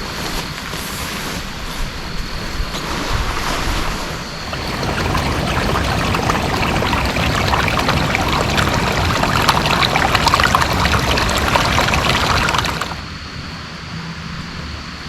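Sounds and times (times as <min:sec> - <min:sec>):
heavy rain hissing: 0:04.4 - 0:13.0
water pouring and splattering: 0:04.4 - 0:13.0.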